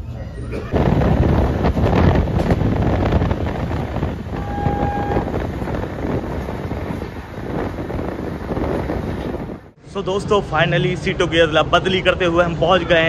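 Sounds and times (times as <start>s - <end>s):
train rumble with knocks: 0.0s - 9.8s
wind buffeting microphone: 0.7s - 9.8s.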